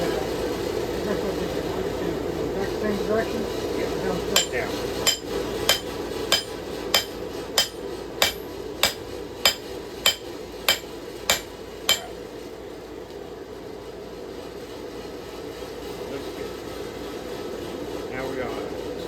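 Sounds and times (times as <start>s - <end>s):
hammer striking steel on anvil: 4.4s - 12.2s.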